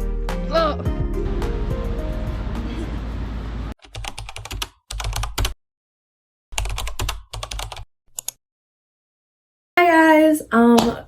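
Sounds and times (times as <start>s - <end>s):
background music: 0.0s - 3.7s
computer keyboard typing: 3.8s - 5.6s, 6.6s - 8.4s.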